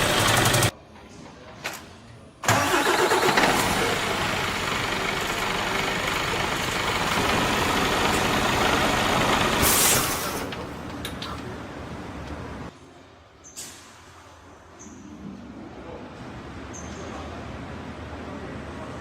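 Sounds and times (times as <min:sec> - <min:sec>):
truck diesel engine starting: 0:00.0 - 0:00.7, 0:02.4 - 0:10.9.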